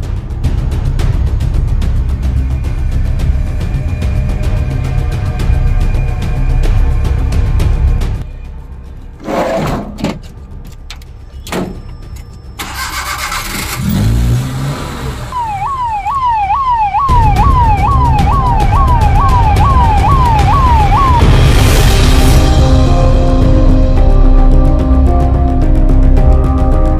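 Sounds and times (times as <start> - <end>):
engine starting: 12.6 - 15.2
electronic siren wailing: 15.3 - 21.6.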